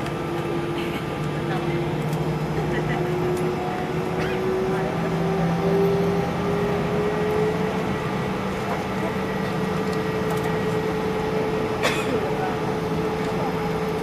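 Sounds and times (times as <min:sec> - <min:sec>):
airliner engines droning: 0:00.0 - 0:14.0.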